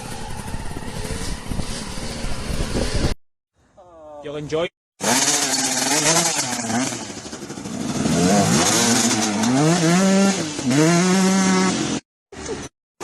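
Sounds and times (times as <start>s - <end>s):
dirt bike engine revving: 5.0s - 12.0s.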